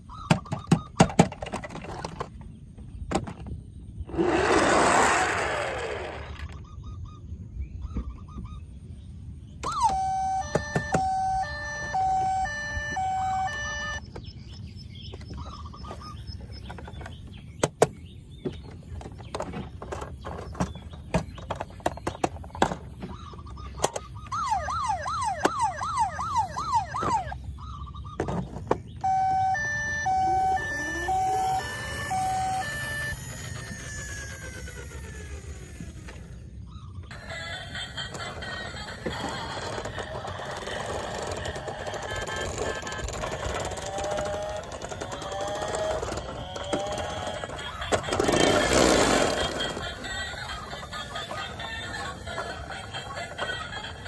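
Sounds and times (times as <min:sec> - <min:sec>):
fast wailing toy siren: 0:09.6 - 0:14.0, 0:24.2 - 0:27.5, 0:29.0 - 0:36.0, 0:37.1 - 0:54.0
two-tone electronic beeping: 0:09.6 - 0:14.1, 0:29.0 - 0:33.8.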